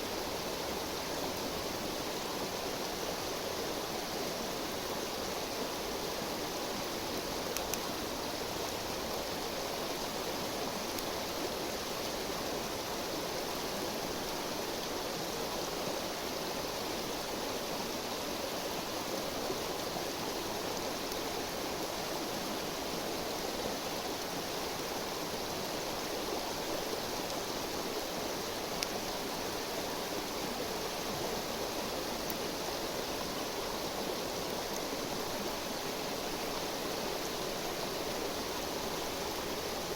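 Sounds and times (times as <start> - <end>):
river rushing: 0.0 - 39.9
faint sharp clicks: 7.5 - 7.9, 10.9 - 11.1, 28.8 - 29.0.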